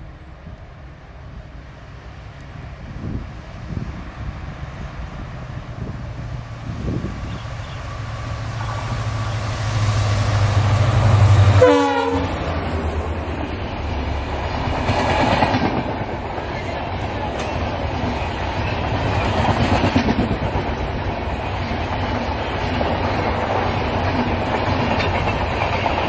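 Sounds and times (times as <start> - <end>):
diesel locomotive engine drone: 0.0 - 26.0
train coaches rumbling: 0.0 - 26.0
short train horn: 11.2 - 12.6
clickety-clack over rail joints: 13.9 - 26.0.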